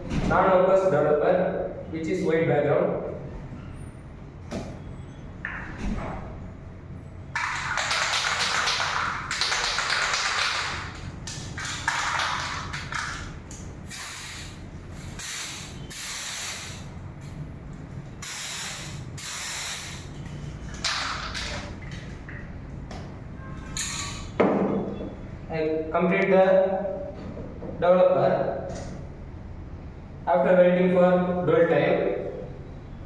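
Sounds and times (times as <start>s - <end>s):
aerosol can spraying in hissing bursts: 13.9s - 16.9s, 18.2s - 20.1s.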